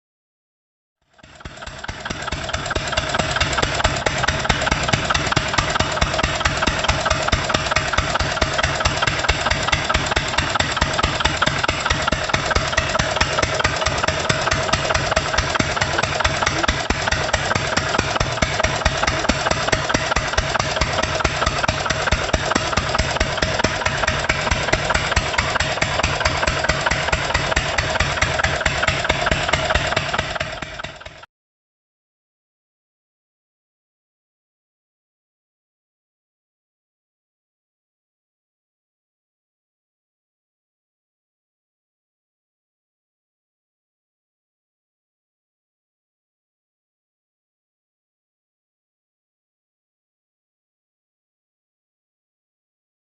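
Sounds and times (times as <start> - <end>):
small diesel engine running: 1.1 - 31.3.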